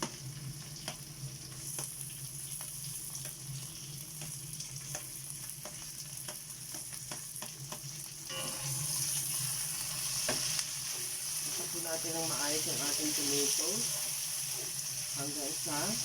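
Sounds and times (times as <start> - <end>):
kitchen exhaust fan humming: 0.0 - 16.0
tomatoes sizzling in hot oil: 0.0 - 16.0
spatula scraping a pan: 8.3 - 16.0.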